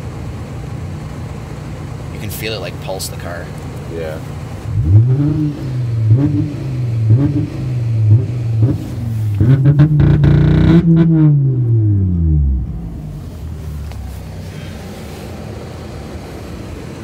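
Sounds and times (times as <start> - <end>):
engine crackle: 0.0 - 17.0
car engine on rev limiter: 4.7 - 14.7.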